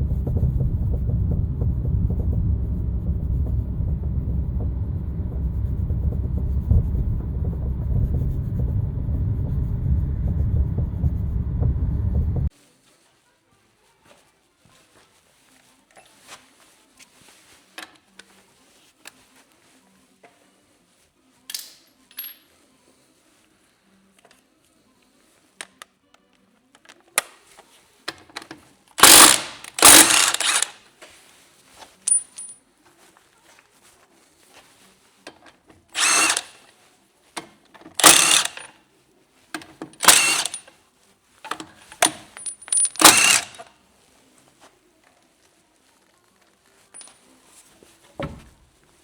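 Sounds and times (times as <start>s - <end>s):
power tool bursts: 29.0s - 30.8s, 36.0s - 36.6s, 38.0s - 38.7s, 40.0s - 40.6s, 43.0s - 43.6s.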